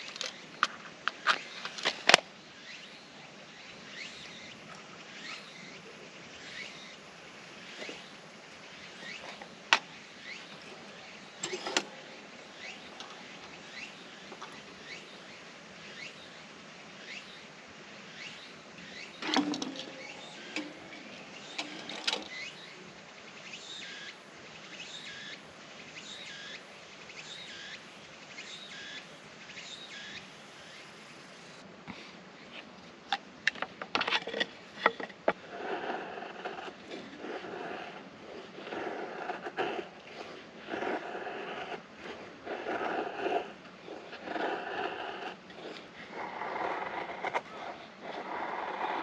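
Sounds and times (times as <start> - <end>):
bird chirping: 0.0 - 17.5, 18.1 - 31.6.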